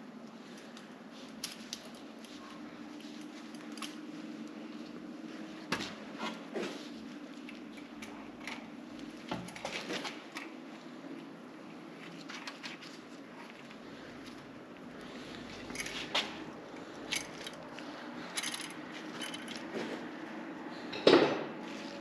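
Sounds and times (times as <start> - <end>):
faint steady hum: 0.0 - 22.0
small parts and tools clicking: 15.5 - 19.8.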